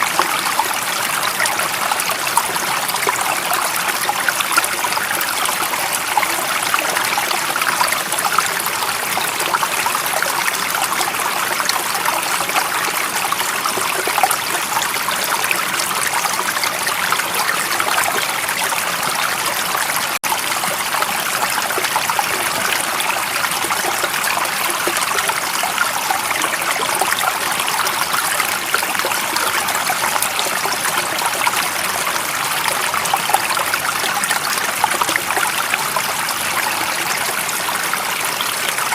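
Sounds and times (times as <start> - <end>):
stream water running: 0.0 - 38.9.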